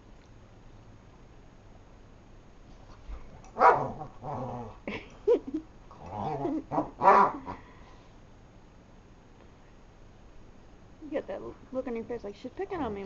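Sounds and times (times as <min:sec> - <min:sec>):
dogs play-growling: 0:03.1 - 0:05.0, 0:05.9 - 0:07.8
dogs barking: 0:03.5 - 0:04.2, 0:06.7 - 0:07.6.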